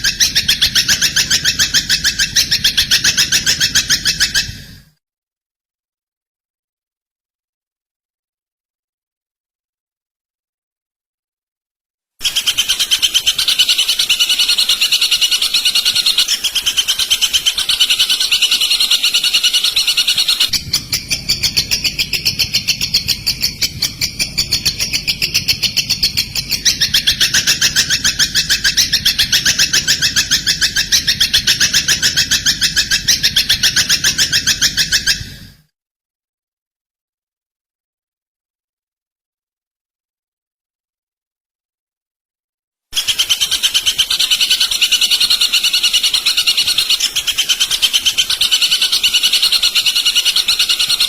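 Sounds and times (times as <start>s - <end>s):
songbird trills: 0.0s - 4.6s, 12.2s - 35.4s, 43.0s - 51.0s.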